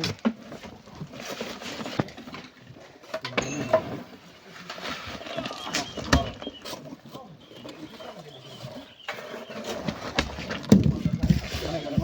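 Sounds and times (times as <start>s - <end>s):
indistinct voices: 3.2s - 10.2s.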